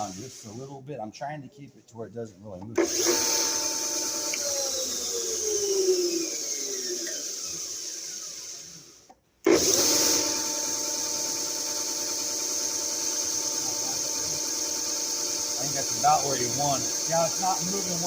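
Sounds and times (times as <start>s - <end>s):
belt sander running: 2.8s - 18.0s.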